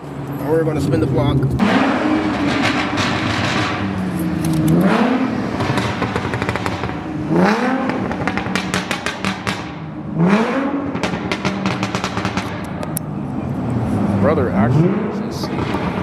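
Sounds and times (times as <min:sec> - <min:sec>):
car engine revving: 0:00.0 - 0:16.0
exhaust crackles and pops: 0:05.6 - 0:07.0, 0:07.8 - 0:09.8, 0:10.9 - 0:13.0.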